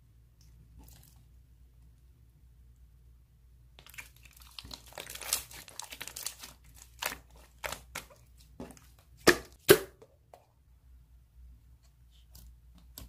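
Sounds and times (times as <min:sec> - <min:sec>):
slime crackling and snapping: 0:03.8 - 0:08.1.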